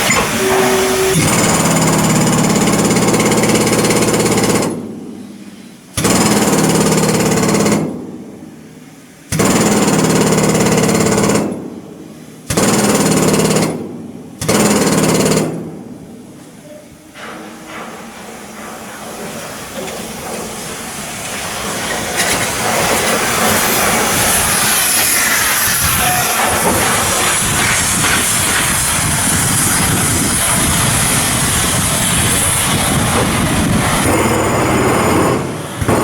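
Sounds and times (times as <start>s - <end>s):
power tool hammering steel: 0.0s - 5.3s, 5.9s - 8.0s, 9.3s - 11.7s, 12.4s - 15.8s, 21.9s - 36.0s.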